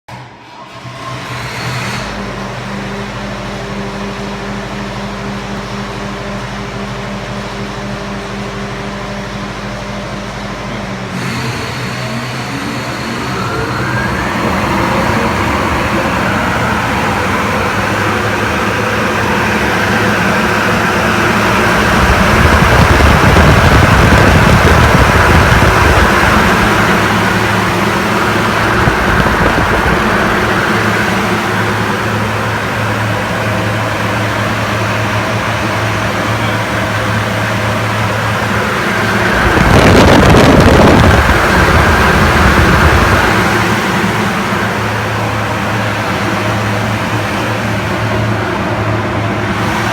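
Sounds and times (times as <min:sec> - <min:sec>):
fan whine rising in pitch: 0:00.1 - 0:49.9
rushing air: 0:11.1 - 0:36.1, 0:36.7 - 0:49.9.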